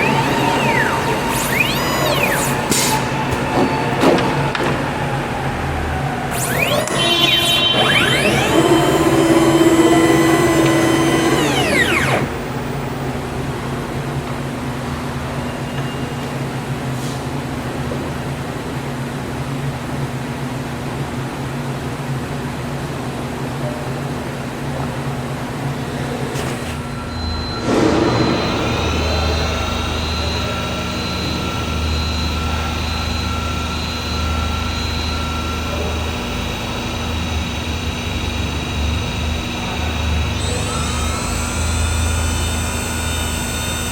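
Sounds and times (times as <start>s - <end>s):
spindle whine: 0.0s - 14.6s, 26.8s - 43.9s
steady machine hum: 0.0s - 15.4s, 26.8s - 43.9s.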